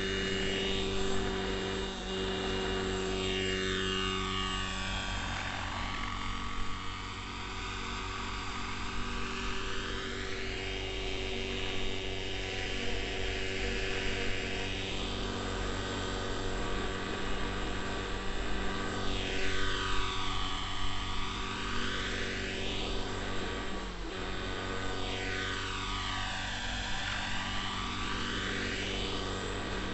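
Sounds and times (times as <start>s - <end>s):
model helicopter engine and rotor drone: 0.0s - 29.9s.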